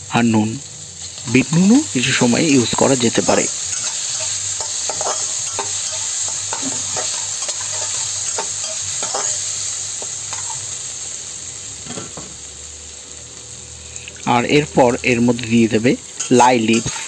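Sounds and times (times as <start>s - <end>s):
meat sizzling in oil: 0.0s - 17.0s
spatula scraping a metal pan: 3.2s - 10.6s, 16.2s - 17.0s.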